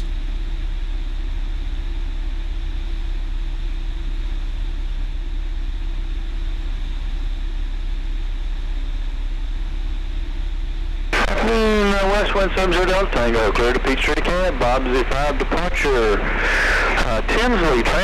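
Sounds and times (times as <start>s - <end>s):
propeller plane engine droning: 0.0s - 18.0s
rushing airflow noise: 11.2s - 18.0s.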